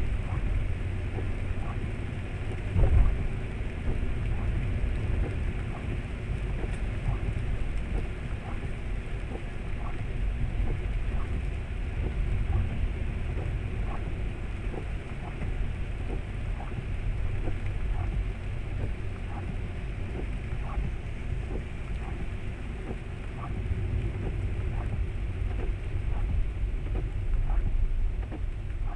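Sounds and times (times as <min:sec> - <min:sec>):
car driving on wet road: 0:00.0 - 0:28.9
faint light ticks: 0:00.0 - 0:28.9
rain hiss and tyre spray: 0:00.0 - 0:28.9.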